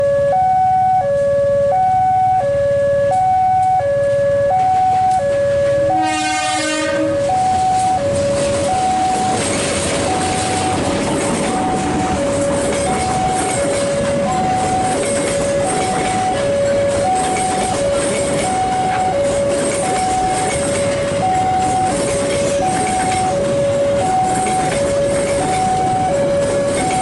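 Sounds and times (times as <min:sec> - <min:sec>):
two-tone electronic warning alarm: 0:00.0 - 0:27.0
train rumble: 0:01.1 - 0:27.0
train horn blast: 0:03.1 - 0:08.2.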